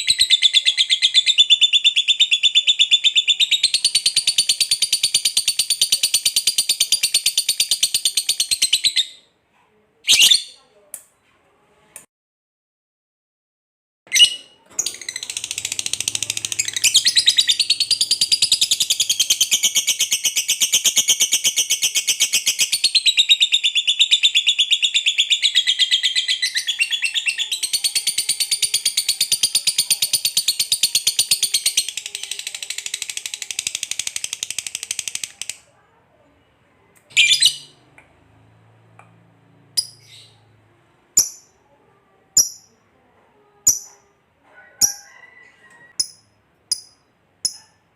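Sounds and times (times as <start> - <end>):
lovebird rattling chatter: 27.8 - 35.6.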